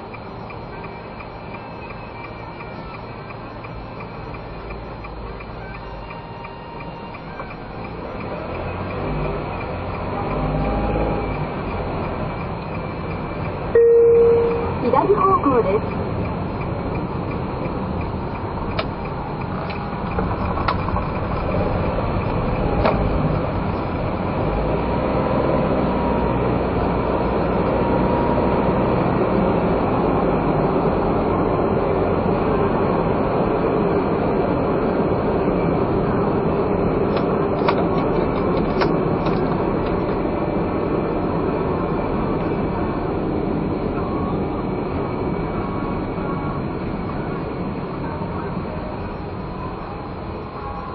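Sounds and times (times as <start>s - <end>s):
car engine and road noise: 0.0s - 50.9s.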